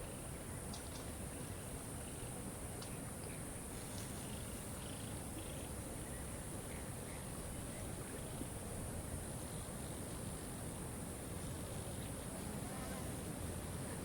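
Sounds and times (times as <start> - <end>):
faint bird chirps: 0.0 - 10.1.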